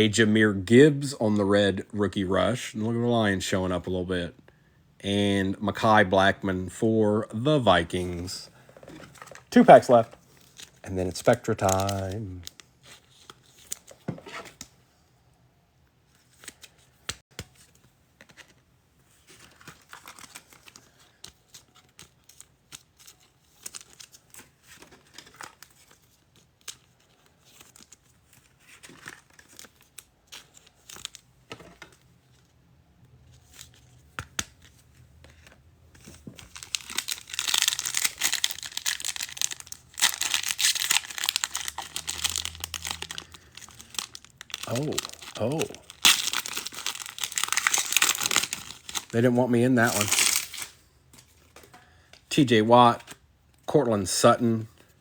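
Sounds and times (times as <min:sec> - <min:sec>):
trading cards clicking and rustling: 0:09.0 - 0:14.7, 0:33.5 - 0:52.3
card pack wrapper ripping: 0:09.2 - 0:13.9, 0:36.3 - 0:50.7.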